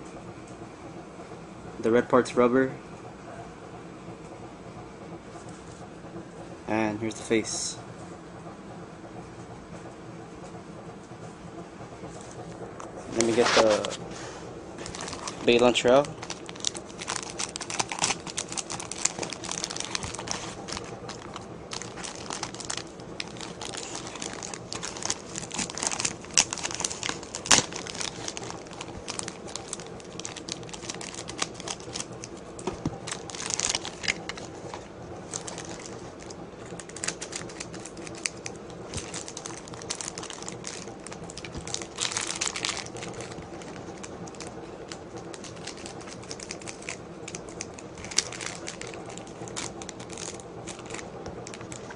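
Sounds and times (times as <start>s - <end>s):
plastic packaging crinkling and tearing: 13.1s - 14.0s, 14.8s - 51.9s.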